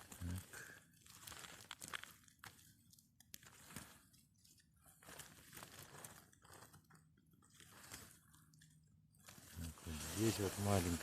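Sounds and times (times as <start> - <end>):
snow crunching: 9.6 - 11.0.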